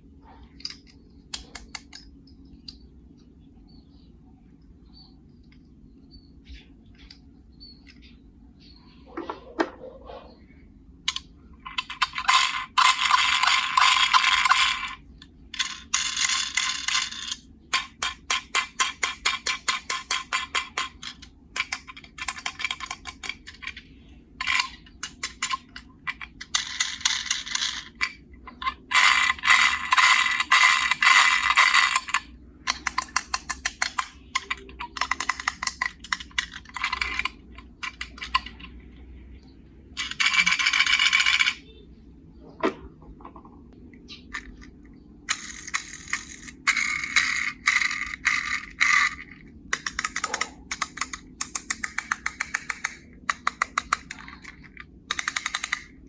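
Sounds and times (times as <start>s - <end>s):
rapid mechanical clicking: 11.0s - 41.8s, 43.6s - 56.0s.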